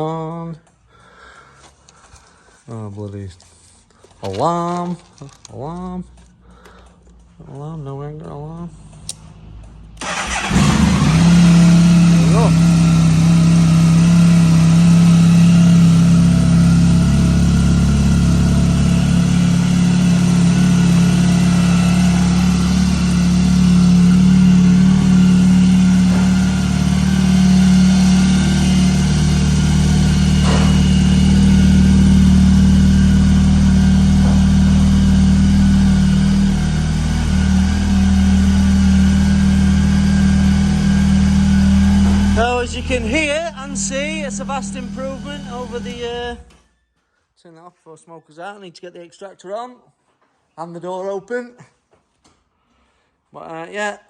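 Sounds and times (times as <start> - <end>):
motorcycle engine idling: 10.0 - 46.4.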